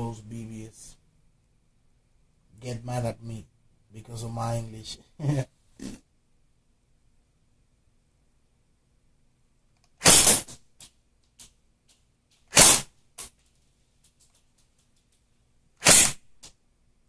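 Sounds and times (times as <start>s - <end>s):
airsoft gun shots: 10.0s - 10.6s, 12.5s - 12.9s, 15.8s - 16.2s.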